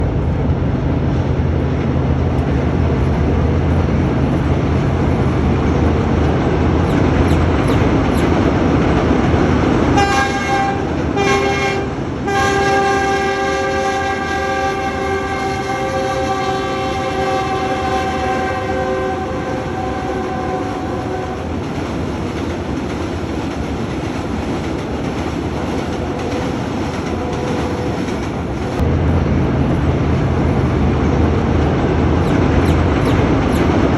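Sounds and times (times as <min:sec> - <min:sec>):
train rumbling across bridge: 0:00.0 - 0:33.9
locomotive horn blasts: 0:10.0 - 0:21.5.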